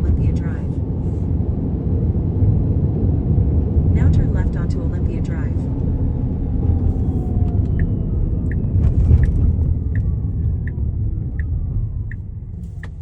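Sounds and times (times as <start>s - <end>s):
road rumble in car cabin: 0.0s - 13.0s
turn signal ticking: 6.9s - 13.0s.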